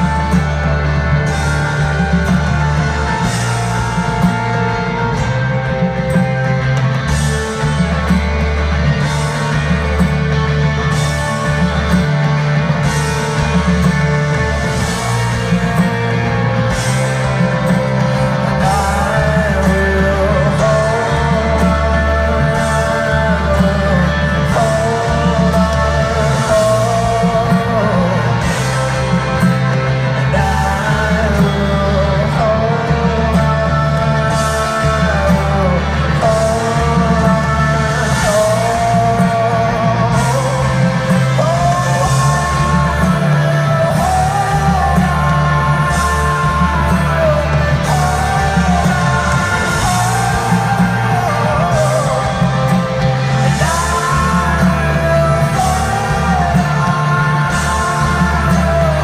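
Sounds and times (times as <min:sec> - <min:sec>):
heavy bass: 0:00.0 - 0:59.0
live folk-rock band playing: 0:00.0 - 0:59.0
wordless singing voice: 0:14.6 - 0:59.0.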